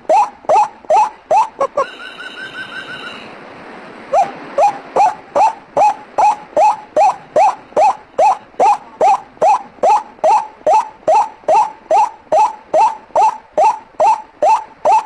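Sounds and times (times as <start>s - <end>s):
waterhen calls: 0.0s - 3.4s, 4.0s - 15.0s
high rapid bird trill: 0.1s - 3.3s.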